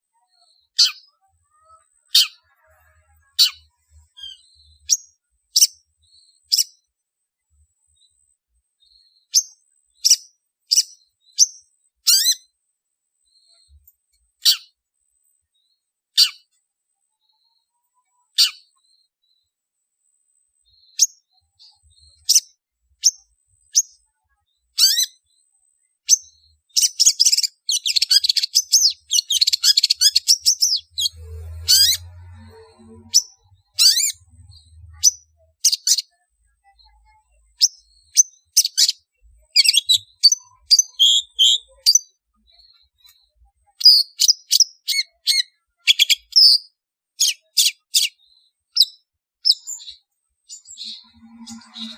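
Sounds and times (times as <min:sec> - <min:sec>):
bird harsh calls and chattering: 0:09.0 - 0:12.5, 0:26.1 - 0:51.9.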